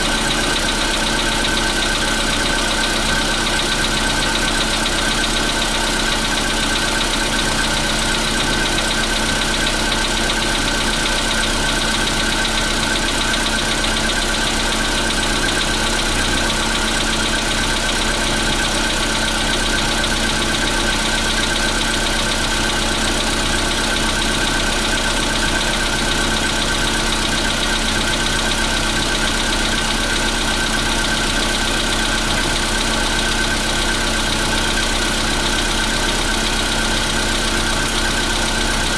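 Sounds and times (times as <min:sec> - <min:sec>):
car engine idling: 0:00.0 - 0:38.9
engine knocking: 0:00.0 - 0:38.9.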